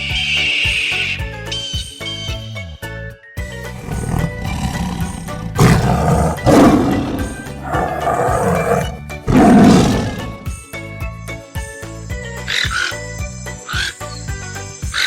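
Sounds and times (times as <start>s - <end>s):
background music: 1.5s - 15.0s
big cat roaring: 3.7s - 10.5s.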